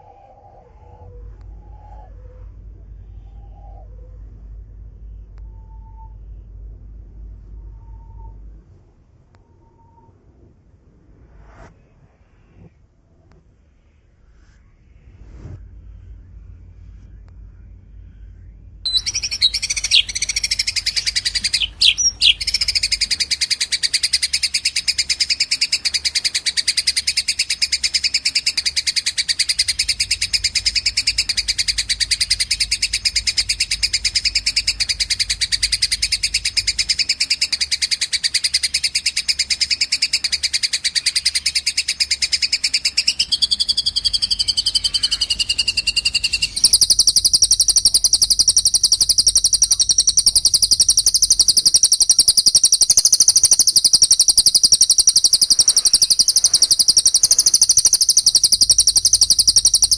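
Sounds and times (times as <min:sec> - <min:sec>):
higher buzzy bird trill: 0:18.9 - 0:59.9
songbird trill: 0:18.9 - 0:59.9.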